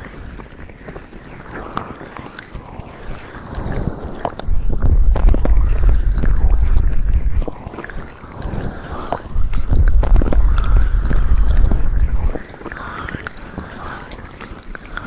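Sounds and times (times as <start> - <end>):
hands rubbing on microphone: 4.4 - 7.7, 9.3 - 12.4.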